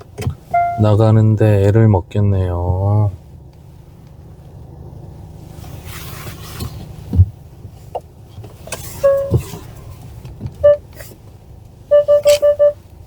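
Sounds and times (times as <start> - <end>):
low car cabin rumble: 0.0 - 13.0
short electronic beep: 0.5 - 0.8, 9.0 - 9.4, 11.9 - 12.8.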